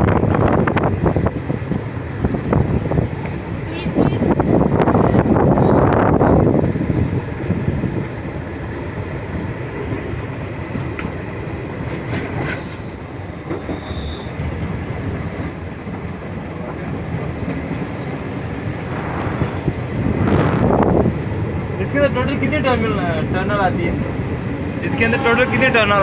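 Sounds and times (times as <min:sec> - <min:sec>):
train rumbling on track: 0:00.0 - 0:26.0
wheels squealing: 0:12.4 - 0:20.7.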